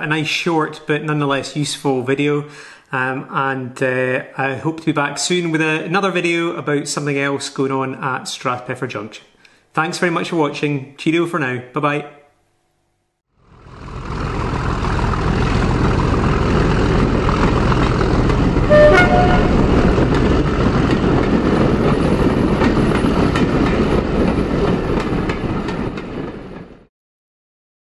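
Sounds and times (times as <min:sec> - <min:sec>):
train rumble: 0:14.8 - 0:26.8
two-tone train horn: 0:18.6 - 0:20.3.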